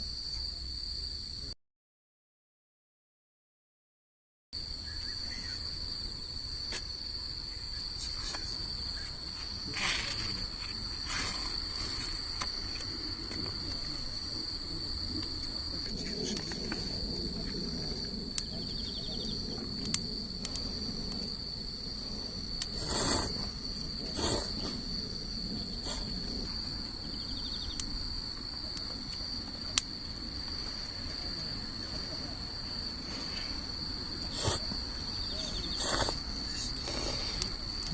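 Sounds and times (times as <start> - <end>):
crickets chirping: 0.0 - 1.6, 4.6 - 37.9.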